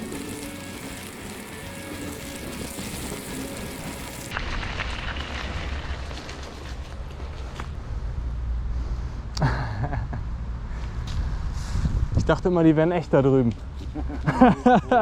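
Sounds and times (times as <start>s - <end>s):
steady rushing hiss: 0.0s - 4.3s
wind rumbling on microphone: 10.9s - 12.6s.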